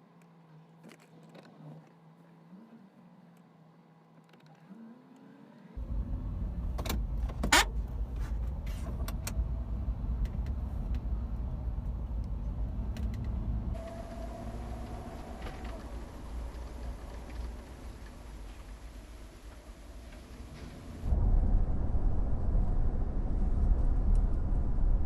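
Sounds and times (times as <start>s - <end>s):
road and wind rumble: 5.7s - 25.0s.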